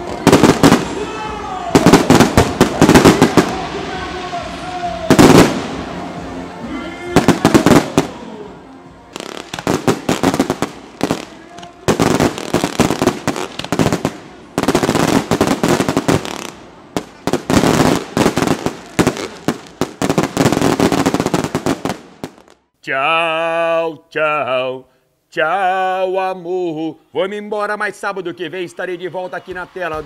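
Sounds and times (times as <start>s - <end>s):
firework bangs and crackling: 0.0s - 6.4s, 7.2s - 8.4s, 9.1s - 22.6s.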